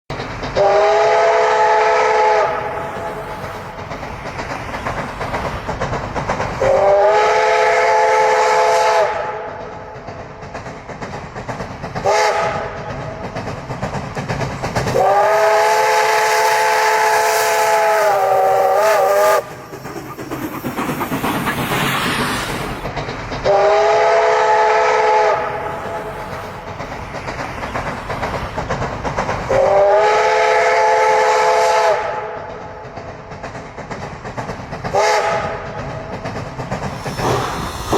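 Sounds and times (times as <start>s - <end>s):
train rumble and hiss: 0.1s - 37.9s
steam locomotive whistle blasts: 0.6s - 3.2s, 6.6s - 9.5s, 12.0s - 12.7s, 14.9s - 19.5s, 23.5s - 26.0s, 29.5s - 32.3s, 34.9s - 35.5s.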